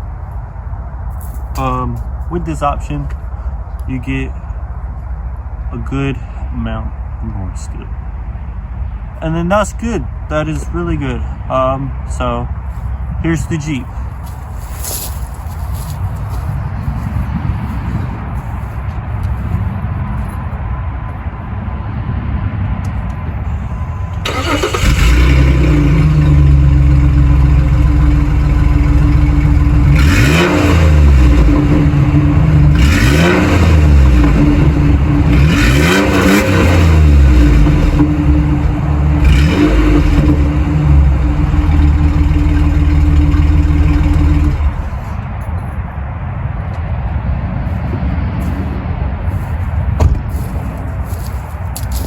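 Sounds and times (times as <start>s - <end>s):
jeep engine starting and revving: 24.2s - 45.1s.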